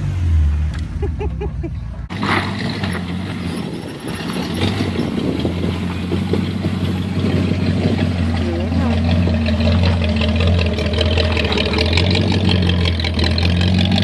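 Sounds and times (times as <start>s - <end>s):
rough engine rumble: 0.0s - 14.0s
engine idling: 3.6s - 14.0s.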